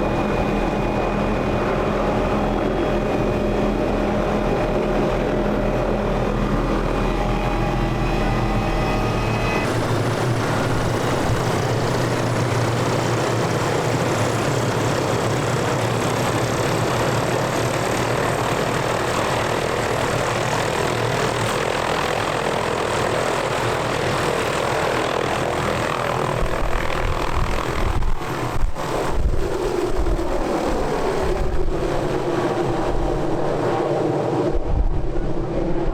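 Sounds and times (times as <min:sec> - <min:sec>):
wind buffeting microphone: 0:25.1 - 0:35.9.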